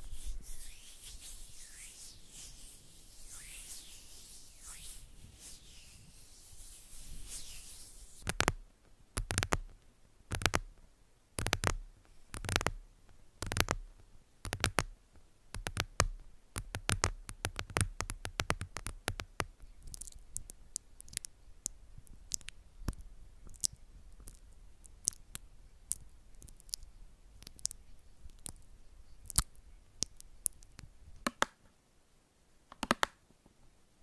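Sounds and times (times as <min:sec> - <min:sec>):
close-up taps and clicks: 0:09.2 - 0:10.7, 0:31.2 - 0:31.6, 0:32.7 - 0:33.2.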